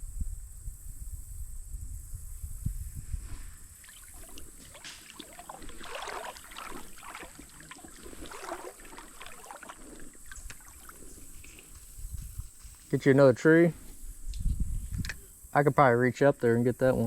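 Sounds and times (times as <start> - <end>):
paddle splashing in water: 3.8 - 11.8.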